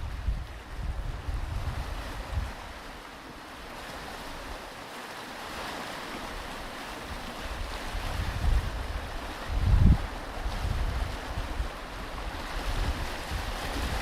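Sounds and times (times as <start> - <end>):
wind buffeting microphone: 0.0 - 3.0, 7.1 - 14.0
surf washing on a beach: 0.0 - 14.0.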